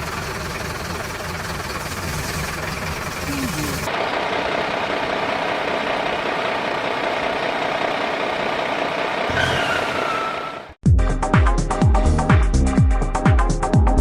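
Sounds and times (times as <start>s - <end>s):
vehicle engine idling: 0.0s - 9.3s.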